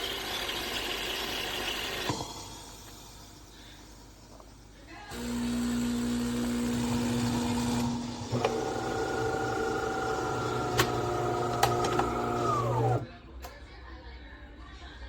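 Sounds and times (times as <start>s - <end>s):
motor whine: 5.1s - 13.0s
espresso machine humming: 5.1s - 13.1s.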